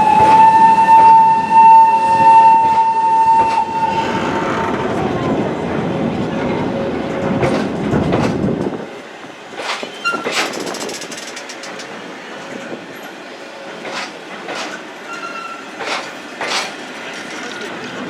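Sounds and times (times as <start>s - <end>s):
train rumbling on rails: 0.0s - 18.0s
train wheels clacking: 6.9s - 8.8s, 9.5s - 18.0s
high wheel squeals: 15.0s - 15.8s.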